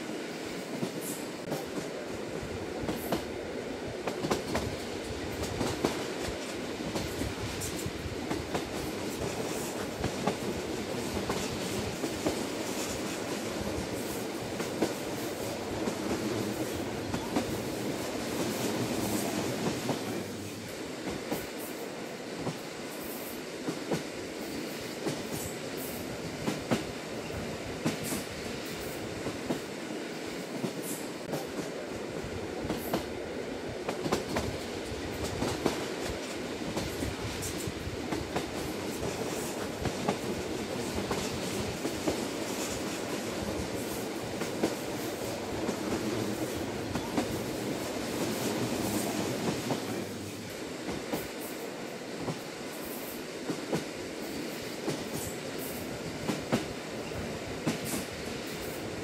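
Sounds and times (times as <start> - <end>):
train wheels rolling on rail: 0.0 - 59.0.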